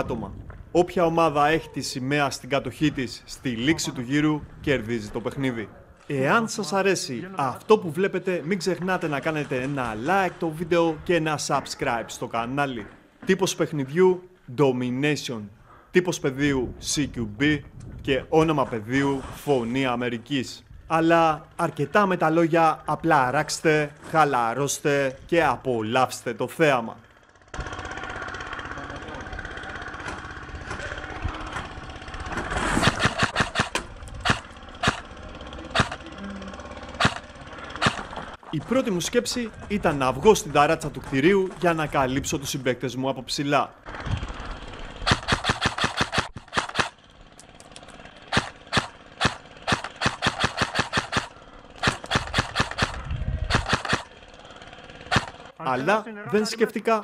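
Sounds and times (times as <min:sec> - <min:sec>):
engine-like drone: 0:18.4 - 0:56.5
airsoft guns firing: 0:32.8 - 0:35.1, 0:37.0 - 0:38.2, 0:45.0 - 0:47.0, 0:48.3 - 0:54.1, 0:55.1 - 0:55.5.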